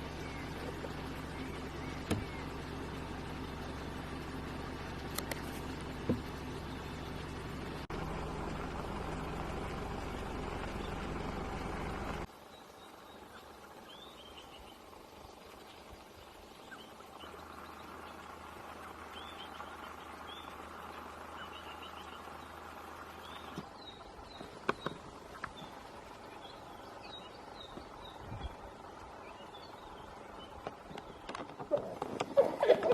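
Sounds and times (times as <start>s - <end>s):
sharp clicks: 5.1s - 5.6s.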